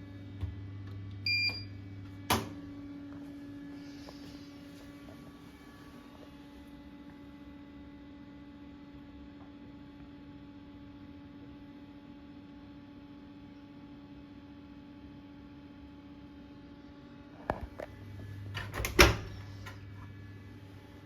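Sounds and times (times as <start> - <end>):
washing machine hum: 0.0 - 21.0.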